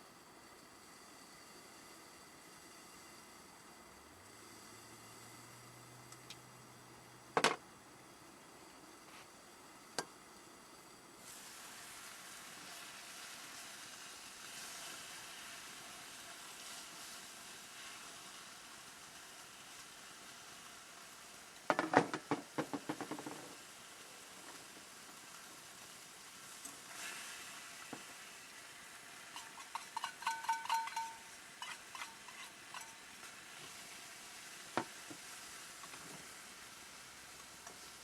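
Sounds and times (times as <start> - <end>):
faint sizzling hiss: 0.0 - 38.0.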